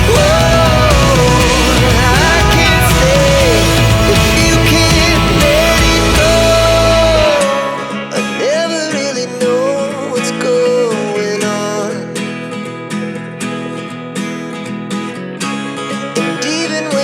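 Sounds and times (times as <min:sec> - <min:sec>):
gliding melody line: 0:00.0 - 0:08.2
plucked acoustic guitar: 0:00.0 - 0:17.0.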